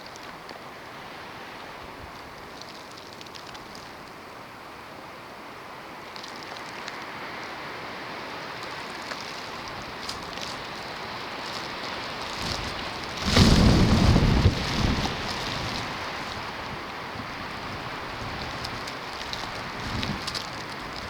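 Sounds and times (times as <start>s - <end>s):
snowstorm hiss: 9.6s - 21.0s
wind gust buffeting microphone: 12.0s - 21.0s.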